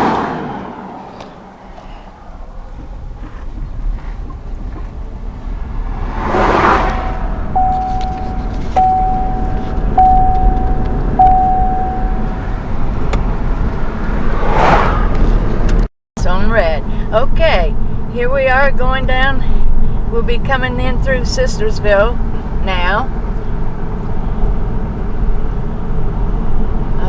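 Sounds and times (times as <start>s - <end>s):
passing traffic whooshes: 0.0s - 15.9s
car cabin road noise: 0.0s - 27.0s.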